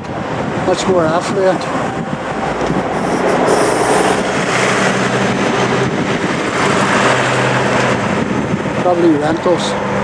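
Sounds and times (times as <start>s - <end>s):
tyre and road noise: 0.0s - 10.0s
vehicle passing: 0.7s - 8.3s.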